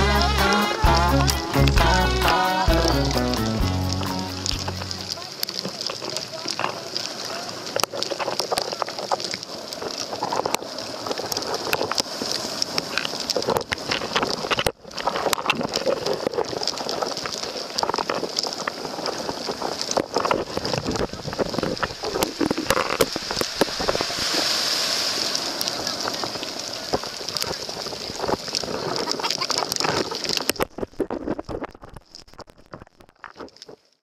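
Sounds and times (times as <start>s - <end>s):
steady high hiss: 0.0s - 5.2s, 21.8s - 29.0s
crab shells clicking and clattering: 4.7s - 23.8s, 26.9s - 33.9s.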